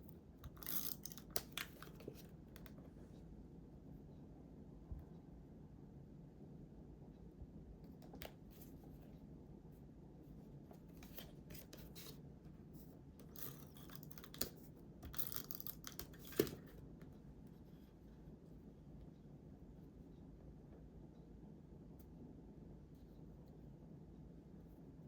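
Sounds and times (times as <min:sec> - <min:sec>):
scissors snipping paper: 0:00.4 - 0:02.0.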